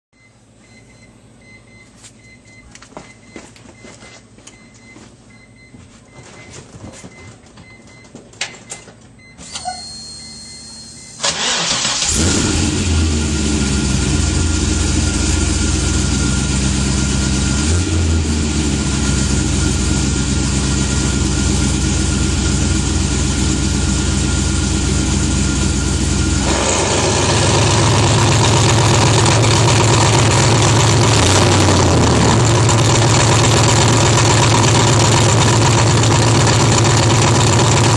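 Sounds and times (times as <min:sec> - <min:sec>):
car engine cranking and idling: 0:11.2 - 0:37.9.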